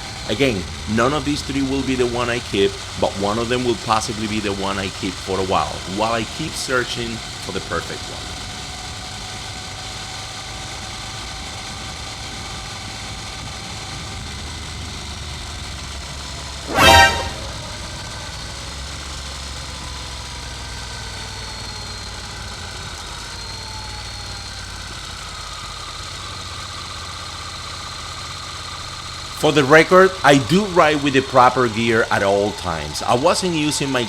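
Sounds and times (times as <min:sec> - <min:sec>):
motorcycle engine running: 0:00.0 - 0:16.6, 0:17.6 - 0:34.0
vehicle horn honk: 0:16.7 - 0:17.8.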